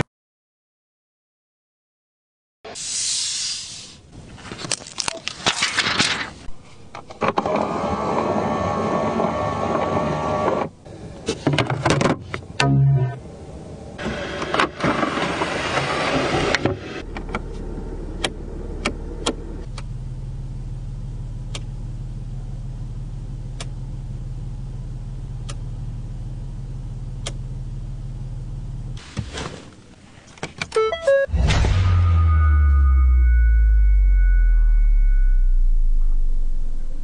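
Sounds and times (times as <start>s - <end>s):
truck engine starting and idling: 12.5s - 29.0s, 30.7s - 37.0s.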